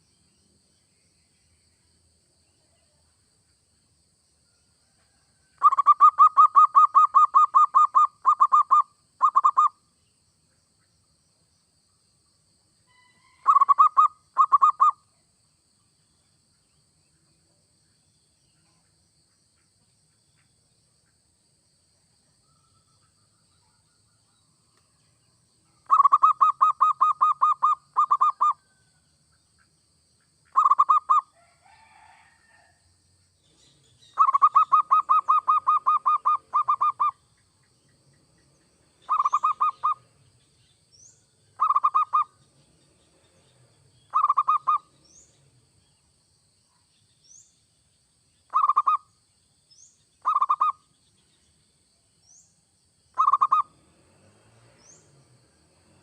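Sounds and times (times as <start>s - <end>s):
dove cooing: 5.6s - 9.7s, 13.4s - 15.0s, 25.9s - 28.6s, 30.5s - 31.2s, 34.2s - 37.1s, 39.1s - 40.0s, 41.6s - 42.3s, 44.1s - 44.8s, 53.2s - 53.7s
faint high rising chirp: 33.4s - 51.6s.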